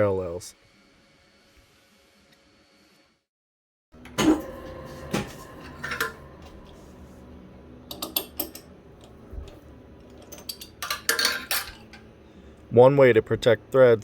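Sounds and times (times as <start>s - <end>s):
low steady hum: 4.0s - 14.0s.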